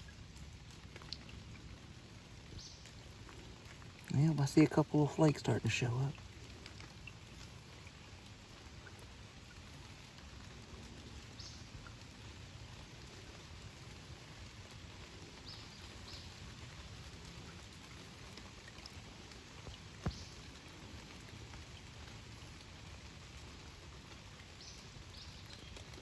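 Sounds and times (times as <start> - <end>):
light rain falling: 0.0 - 26.0.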